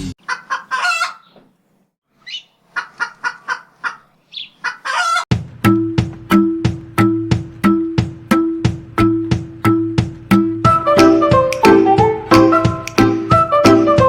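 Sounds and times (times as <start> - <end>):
hen squawking: 0.2 - 1.4, 2.2 - 5.2
hen clucking: 0.2 - 1.5, 2.2 - 5.3
music with tabla beat: 5.3 - 14.0.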